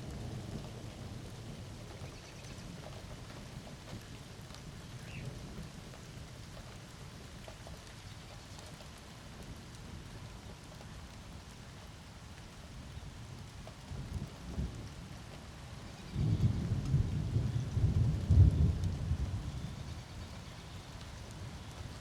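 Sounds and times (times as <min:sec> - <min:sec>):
rain falling: 0:00.0 - 0:22.0
thunder rumbling: 0:16.0 - 0:22.0.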